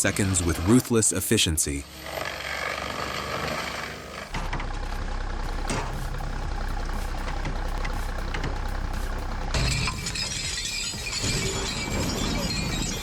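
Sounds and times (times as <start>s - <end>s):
heavy machine engine running: 2.0s - 13.0s
deep steady hum: 4.3s - 10.2s.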